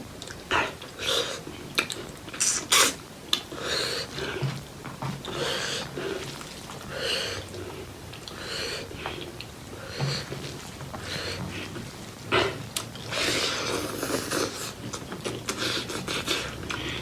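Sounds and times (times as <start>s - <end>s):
wet chewing and mouth clicks: 0.2s - 17.0s
breath through the nose: 12.4s - 14.8s.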